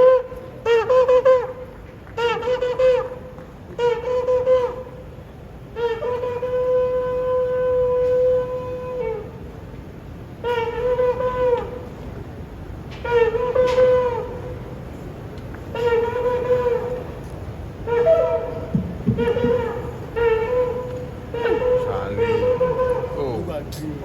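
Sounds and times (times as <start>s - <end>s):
horn blasts with bending notes: 17.8s - 23.5s.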